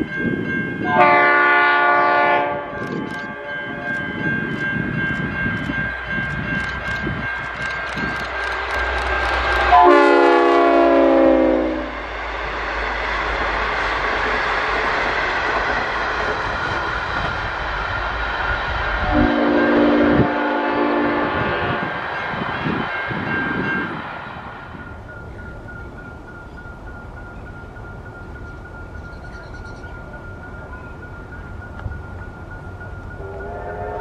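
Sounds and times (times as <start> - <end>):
train wheels rumbling on rails: 0.0 - 34.0
locomotive horn blast: 0.8 - 3.9, 9.6 - 12.0, 19.1 - 21.9, 33.2 - 34.0.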